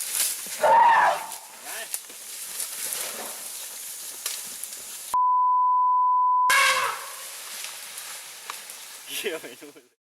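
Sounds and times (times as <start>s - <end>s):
censor bleep: 5.2s - 6.5s
loud short cry: 6.5s - 7.2s.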